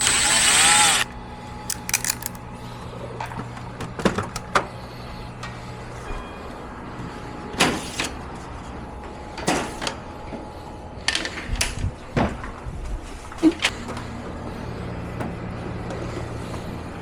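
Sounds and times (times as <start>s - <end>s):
plastic parts clacking: 1.7s - 2.4s.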